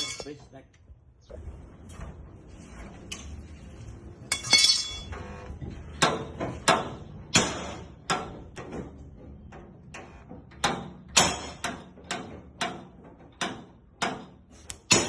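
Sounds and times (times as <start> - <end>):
hammer striking sheet metal: 6.0 - 8.5, 10.6 - 15.0.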